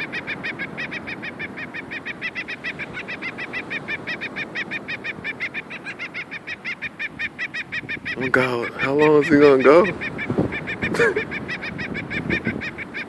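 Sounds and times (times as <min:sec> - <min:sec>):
gull calling harsh notes: 0:00.0 - 0:13.0.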